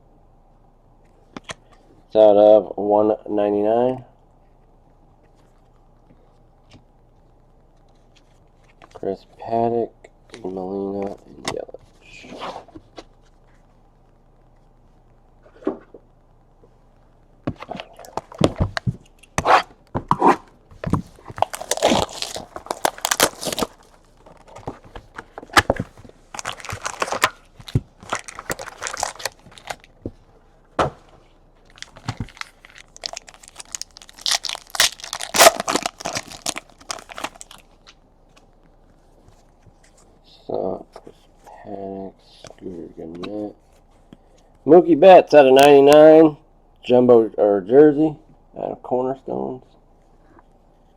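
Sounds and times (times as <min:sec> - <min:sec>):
wrappers tearing and crinkling: 0:21.2 - 0:24.8, 0:25.5 - 0:29.9, 0:31.6 - 0:38.0.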